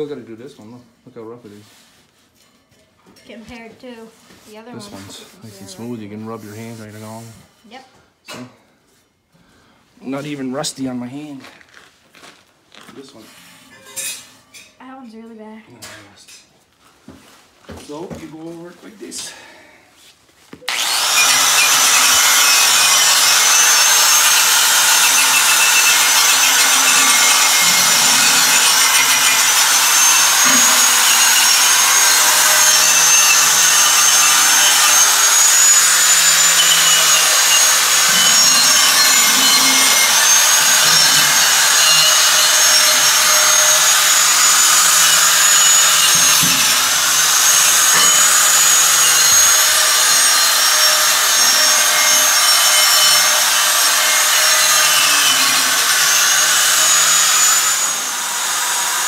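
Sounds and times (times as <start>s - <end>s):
power tool sanding steel: 20.7s - 59.0s.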